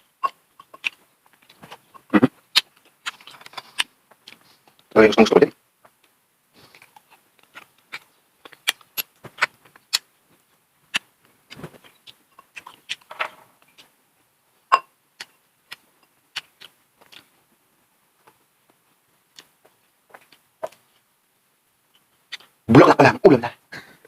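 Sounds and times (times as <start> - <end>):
crunchy food chewing: 0.2 - 4.9, 6.6 - 13.9, 15.2 - 17.4, 21.9 - 22.6.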